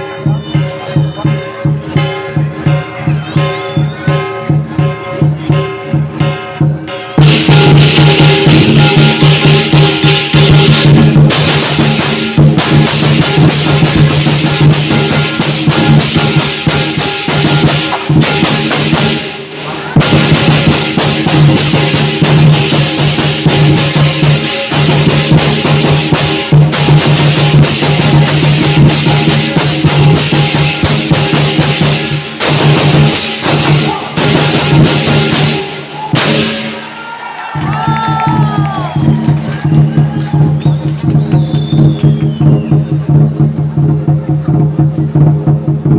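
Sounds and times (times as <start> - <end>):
ringing gong: 0.0 - 19.4
crashing cymbals: 0.0 - 37.0
large drum beating fast: 0.0 - 45.9.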